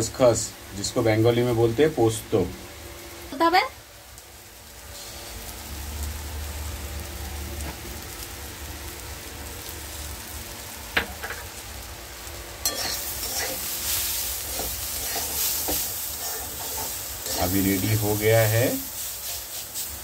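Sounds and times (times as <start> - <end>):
greens sizzling in oil: 0.0 - 20.0
spatula stirring in pan: 12.6 - 20.0.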